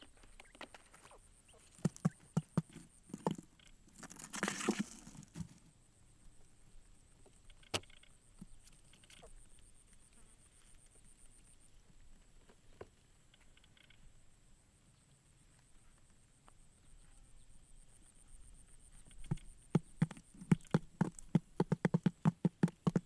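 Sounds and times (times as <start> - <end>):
taps and knocks: 19.3 - 23.0.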